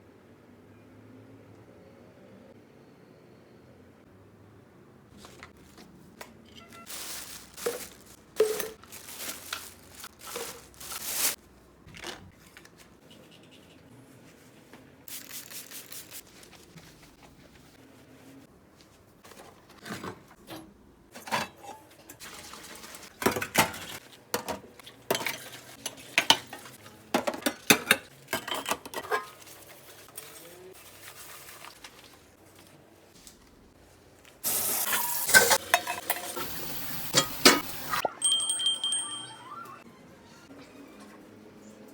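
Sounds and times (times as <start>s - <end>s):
dishes and cutlery clinking: 7.6s - 8.8s, 23.2s - 29.5s, 34.8s - 39.6s.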